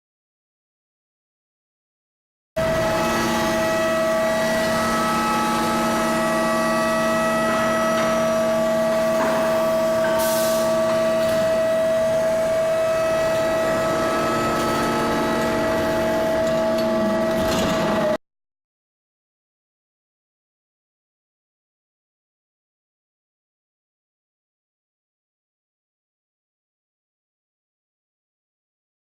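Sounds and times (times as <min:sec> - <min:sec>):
furnace electrical whine: 0:02.6 - 0:18.2.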